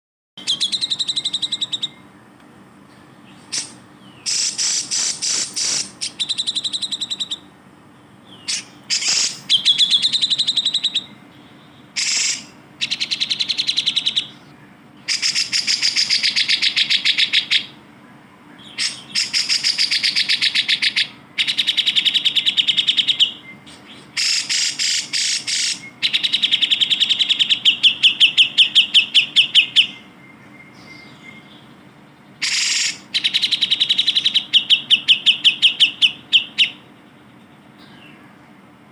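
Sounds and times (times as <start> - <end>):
bulbul singing chattering phrases: 0.4 - 38.9.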